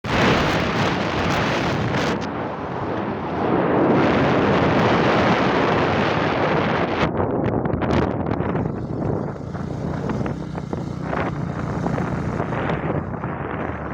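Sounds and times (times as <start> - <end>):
wind roaring over microphone: 0.0 - 13.9.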